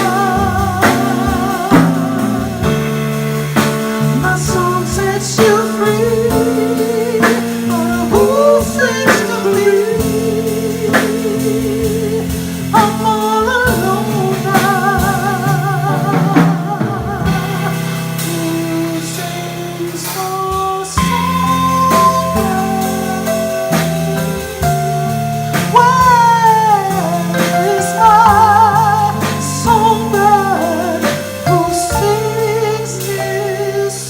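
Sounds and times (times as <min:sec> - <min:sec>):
drum hits: 0:00.0 - 0:33.6
live band playing: 0:00.0 - 0:34.0
person singing with vibrato: 0:00.0 - 0:34.0.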